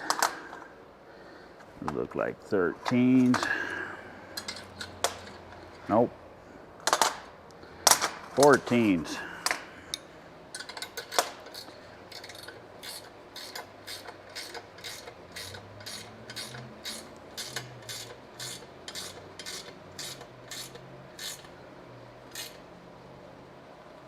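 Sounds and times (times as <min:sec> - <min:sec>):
ratchet wrench pawl rasping: 0:11.0 - 0:21.5, 0:22.3 - 0:22.6.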